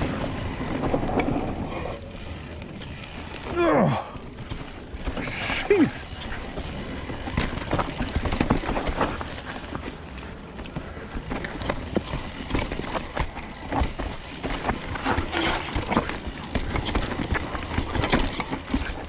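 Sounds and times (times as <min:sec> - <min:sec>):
bike knocks and rattles: 0:00.0 - 0:19.0.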